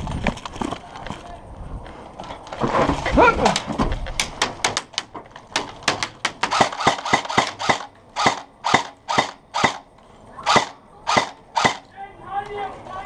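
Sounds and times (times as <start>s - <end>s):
airsoft gun shots: 5.9s - 9.8s, 10.5s - 11.8s.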